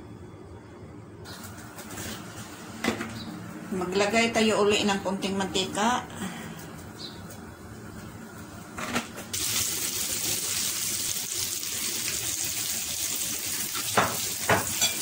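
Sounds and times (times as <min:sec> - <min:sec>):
egg and gourd sizzling in hot oil: 0:09.3 - 0:15.0.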